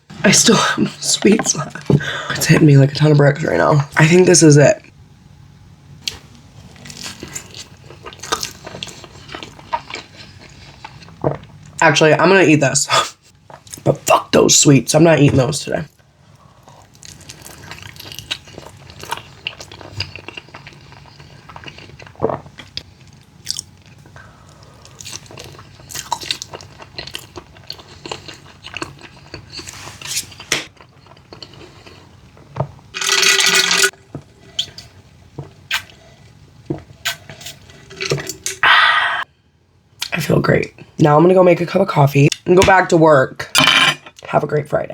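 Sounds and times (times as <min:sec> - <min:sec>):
chewing and crunching snack food: 0:06.0 - 0:11.8, 0:16.5 - 0:36.0.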